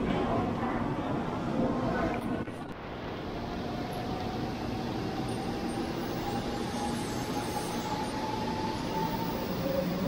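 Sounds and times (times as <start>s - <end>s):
train motor whine: 3.9s - 10.0s.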